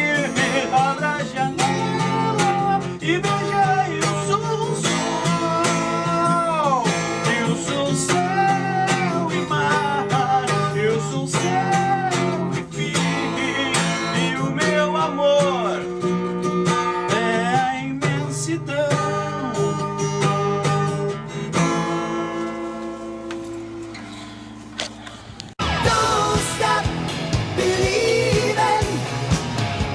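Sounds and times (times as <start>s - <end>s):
acoustic guitar strumming: 0.0s - 24.8s, 25.6s - 29.9s.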